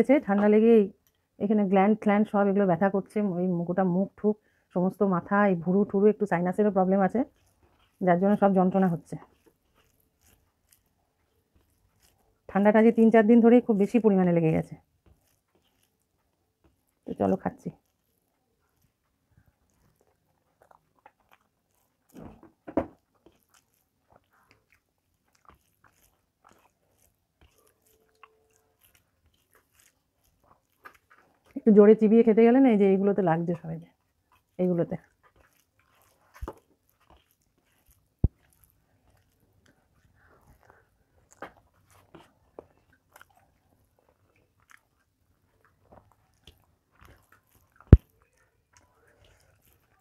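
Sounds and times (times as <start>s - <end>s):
person chewing food: 6.6s - 50.0s.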